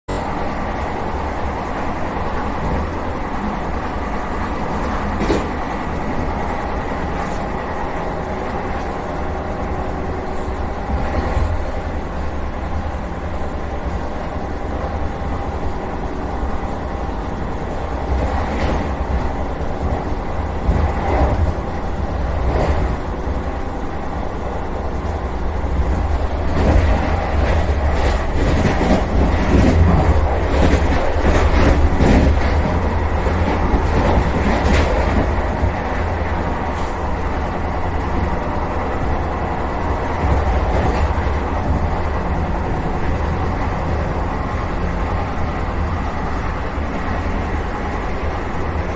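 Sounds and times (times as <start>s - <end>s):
train low rumble: 0.1s - 48.9s
wheels clicking over rail joints: 25.9s - 37.0s.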